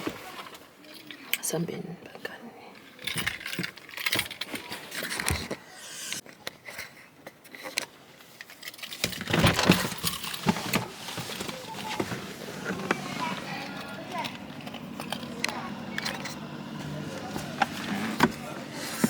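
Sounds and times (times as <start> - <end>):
knocks and rustling: 9.0 - 15.6.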